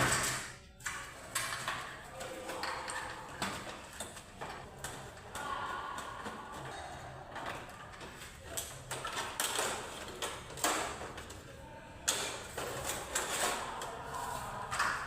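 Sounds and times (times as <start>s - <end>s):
tools clicking and knocking: 0.0s - 11.4s
tools scraping: 12.1s - 15.0s.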